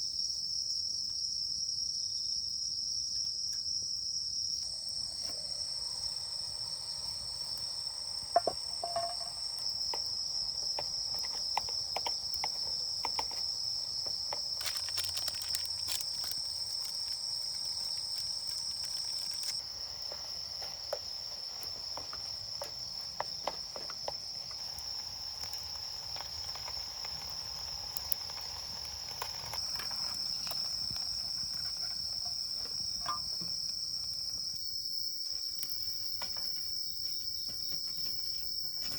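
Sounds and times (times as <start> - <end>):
insects chirring: 0.0 - 38.9
small clicks and taps: 9.9 - 31.8.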